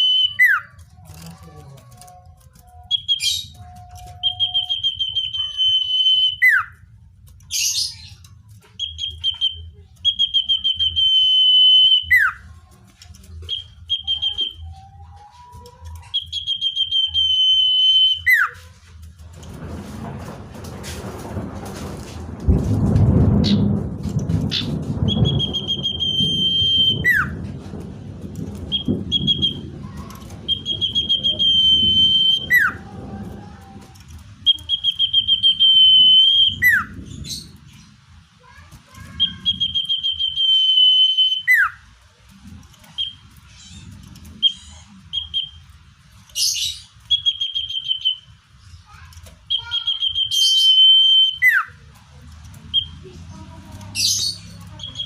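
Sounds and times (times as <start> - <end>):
bird song with rattly trill: 0.0 - 20.2, 23.2 - 55.0
low rumble: 0.0 - 55.0
short bird chips: 42.8 - 51.8.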